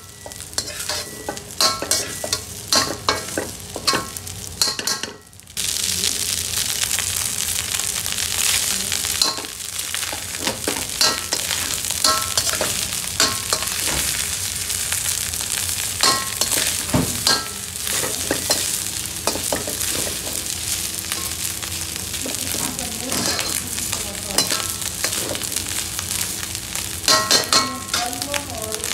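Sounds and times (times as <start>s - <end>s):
spoon clinking on pan: 0.0s - 5.2s, 27.1s - 28.1s
rice sizzling in a wok: 0.0s - 28.9s
metal spoon scraping pan: 0.1s - 5.1s, 10.4s - 14.0s, 23.1s - 23.6s, 24.4s - 25.5s.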